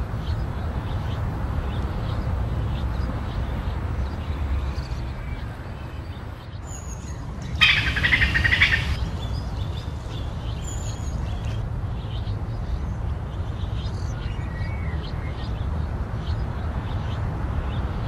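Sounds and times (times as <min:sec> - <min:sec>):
birds chirping: 0:00.0 - 0:18.0
songbird rapid trill: 0:02.7 - 0:11.6.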